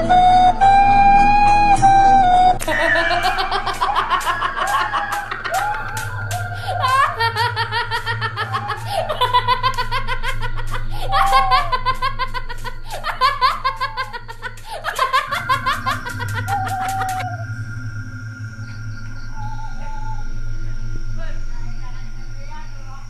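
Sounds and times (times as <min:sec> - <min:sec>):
background music with low beat: 0:00.0 - 0:17.3
bursts of laughter: 0:02.6 - 0:17.4.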